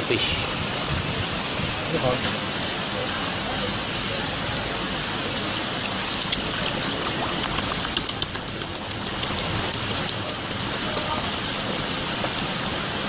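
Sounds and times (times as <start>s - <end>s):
rushing hiss of water: 0.0s - 13.0s
patter of small ticks: 5.9s - 10.7s.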